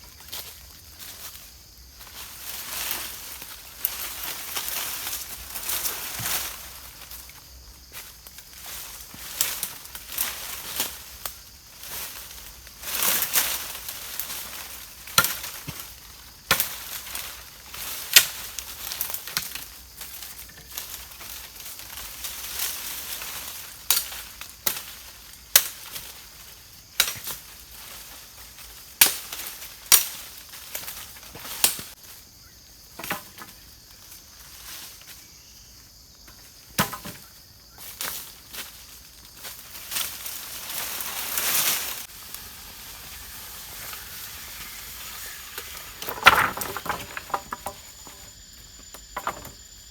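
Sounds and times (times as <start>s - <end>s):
rustling and scraping: 38.0s - 49.8s.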